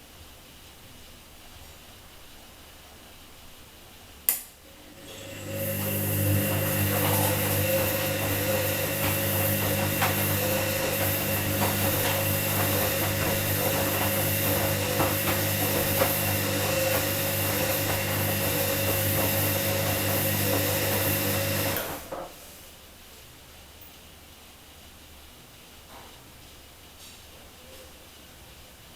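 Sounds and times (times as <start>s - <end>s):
washing machine motor humming: 4.6s - 22.5s.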